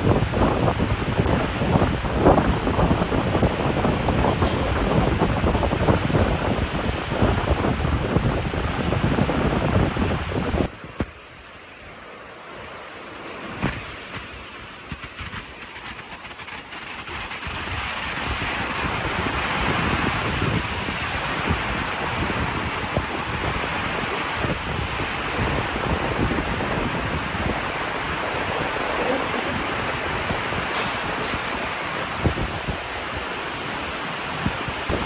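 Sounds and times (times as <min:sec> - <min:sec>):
wind buffeting microphone: 0:00.0 - 0:11.0, 0:17.4 - 0:35.0
wind and rain rushing: 0:00.0 - 0:35.0.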